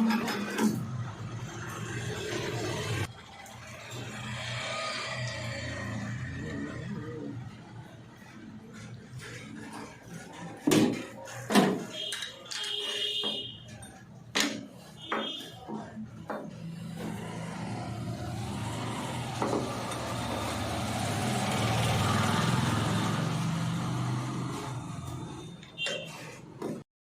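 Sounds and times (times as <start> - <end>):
vehicle engine passing by: 1.0 - 9.8, 16.6 - 25.6.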